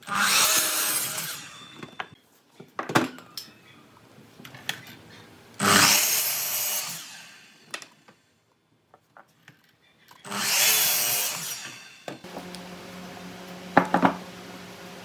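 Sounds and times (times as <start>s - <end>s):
power tool cutting wood: 0.1s - 1.6s, 5.6s - 7.6s, 10.3s - 15.0s.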